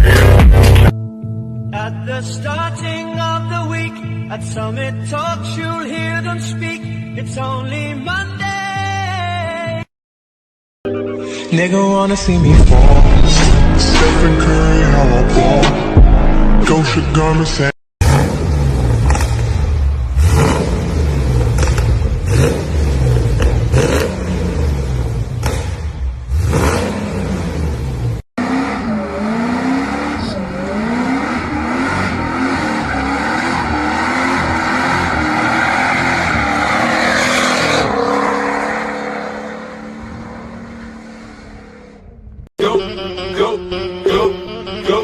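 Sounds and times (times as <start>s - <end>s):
car engine revving hard: 18.0s - 42.0s.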